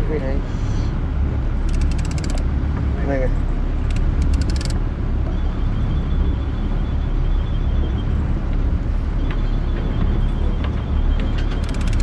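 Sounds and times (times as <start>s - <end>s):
wind: 0.0s - 12.0s
clicks: 1.7s - 2.4s, 3.9s - 4.8s, 11.6s - 12.0s.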